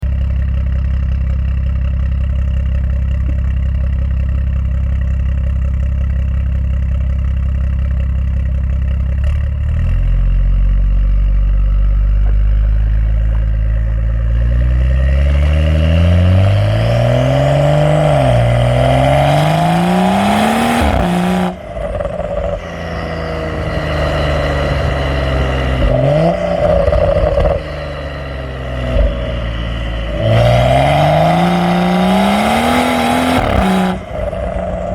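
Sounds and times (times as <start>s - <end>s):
car exhaust revving: 0.0s - 34.9s
exhaust crack: 10.2s - 34.9s.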